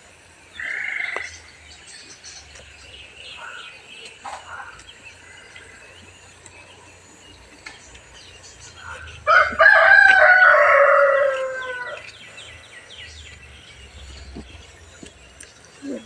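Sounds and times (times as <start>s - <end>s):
loud harsh bird call: 0.5s - 1.5s, 8.6s - 12.8s.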